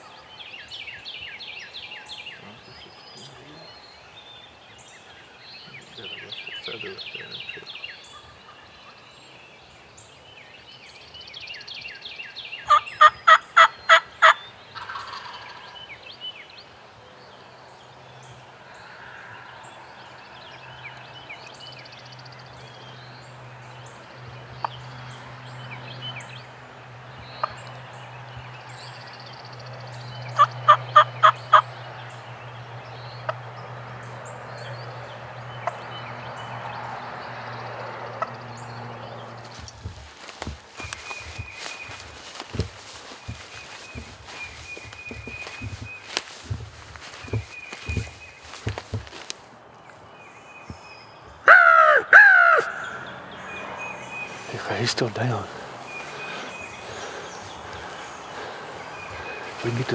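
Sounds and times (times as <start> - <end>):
small birds chirping faintly: 0.0 - 51.5, 52.6 - 59.9
turkey yelping: 51.5 - 53.0.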